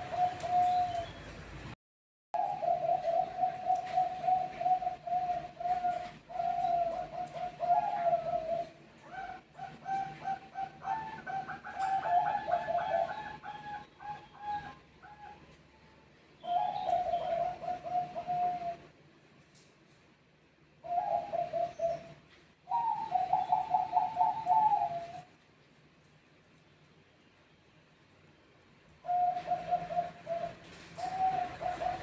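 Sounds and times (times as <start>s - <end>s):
doves cooing: 0.0s - 1.2s, 2.4s - 15.5s, 16.4s - 19.0s, 20.8s - 25.4s, 29.0s - 32.0s.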